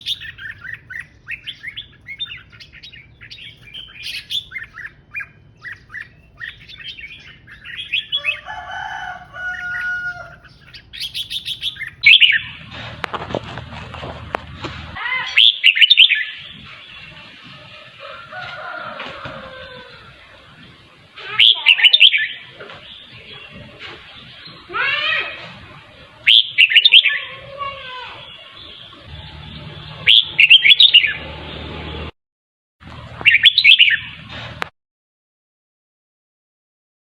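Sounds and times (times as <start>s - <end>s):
bird chirping: 0.0s - 12.7s, 15.2s - 17.8s, 26.0s - 27.5s, 28.2s - 31.3s, 33.2s - 34.2s
dull rumbling noise: 0.0s - 15.3s, 28.9s - 32.1s.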